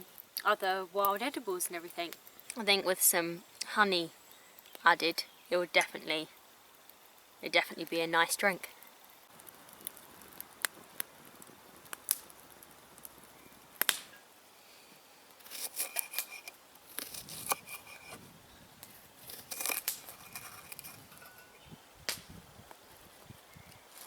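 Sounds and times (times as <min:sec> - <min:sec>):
crinkling and rustling: 0:15.4 - 0:18.2, 0:18.8 - 0:21.6.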